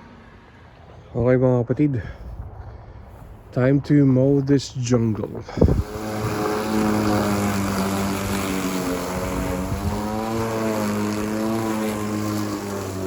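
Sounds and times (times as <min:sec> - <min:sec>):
lawn mower engine running: 0:05.5 - 0:13.0.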